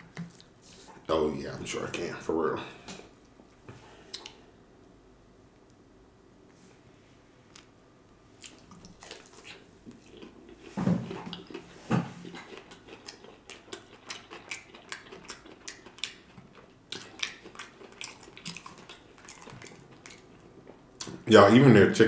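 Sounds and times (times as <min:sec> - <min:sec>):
crunchy chewing: 0:08.4 - 0:21.2.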